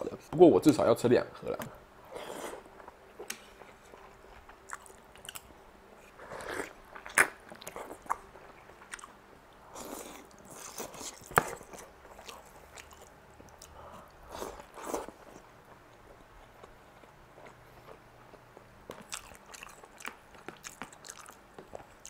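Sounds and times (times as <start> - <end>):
chewing and biting noodles: 19.0 - 22.0.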